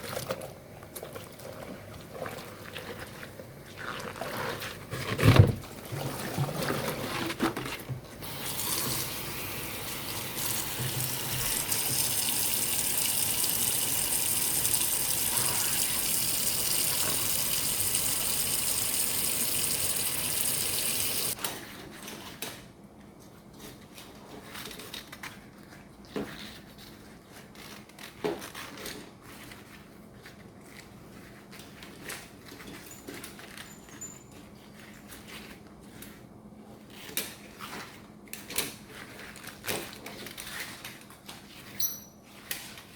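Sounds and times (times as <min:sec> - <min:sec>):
water running from a tap: 0:08.2 - 0:21.4.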